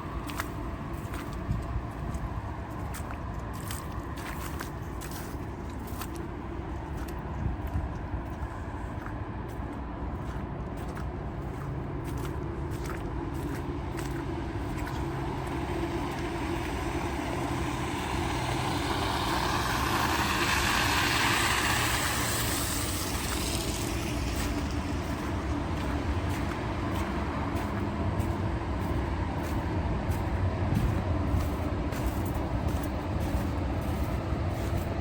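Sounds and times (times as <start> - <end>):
low rumble of traffic: 0.0 - 35.0
vehicle driving past: 11.5 - 35.0.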